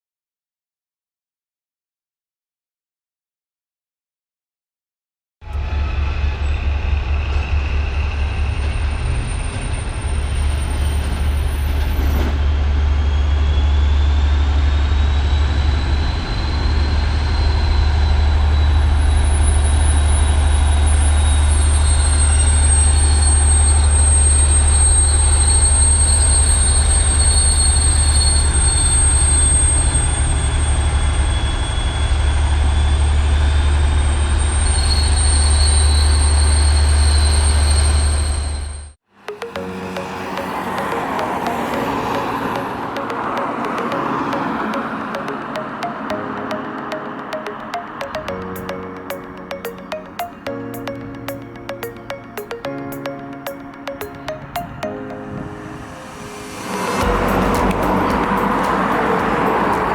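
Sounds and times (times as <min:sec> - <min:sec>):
train rumbling on rails: 0:05.5 - 0:38.7, 0:56.3 - 0:59.9
high wheel squeal: 0:05.5 - 0:38.9.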